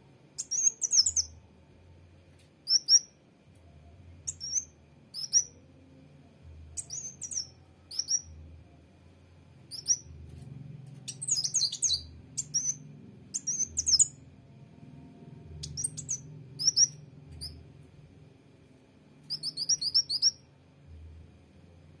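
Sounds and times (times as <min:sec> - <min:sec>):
sunbird chirping: 0:00.4 - 0:01.4, 0:02.7 - 0:03.1, 0:04.3 - 0:05.6, 0:06.8 - 0:08.4, 0:09.7 - 0:10.2, 0:11.0 - 0:14.2, 0:15.5 - 0:17.6, 0:19.3 - 0:20.4.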